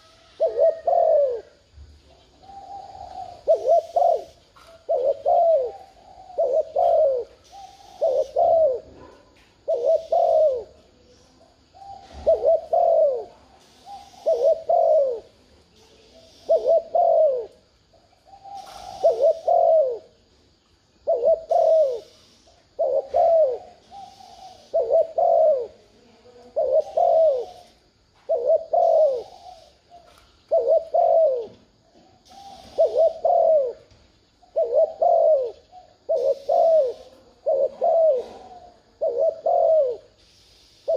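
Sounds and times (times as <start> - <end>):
dove cooing: 0.0 - 20.3, 21.0 - 40.9.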